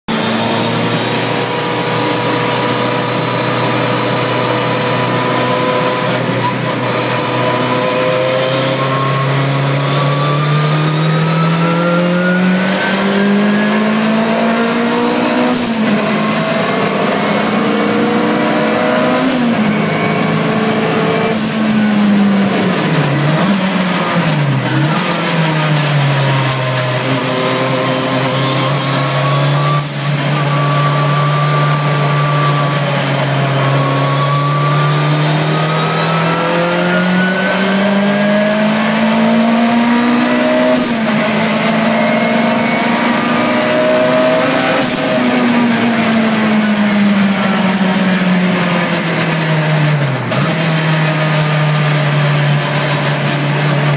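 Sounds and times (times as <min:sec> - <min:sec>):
car engine revving: 0:00.1 - 0:53.9
turbo whistle: 0:14.4 - 0:22.2, 0:27.5 - 0:35.8, 0:40.4 - 0:45.9.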